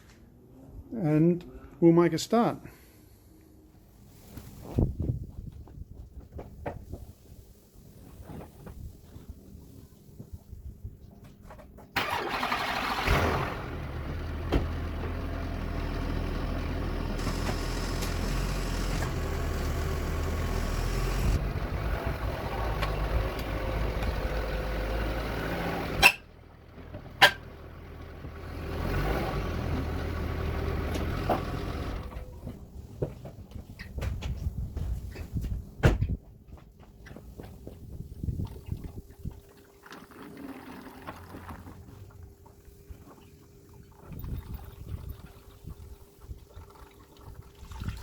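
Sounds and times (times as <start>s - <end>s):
car engine running: 13.1s - 32.3s.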